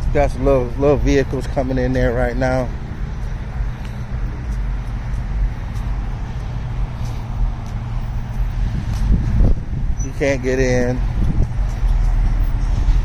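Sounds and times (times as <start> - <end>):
car engines rumbling: 0.0 - 13.0.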